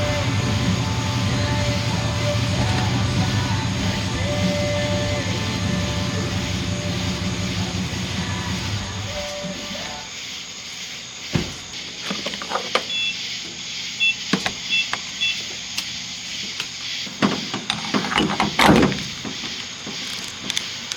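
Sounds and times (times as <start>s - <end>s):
steady hiss: 0.0s - 20.9s
short double beeps: 12.9s - 13.2s.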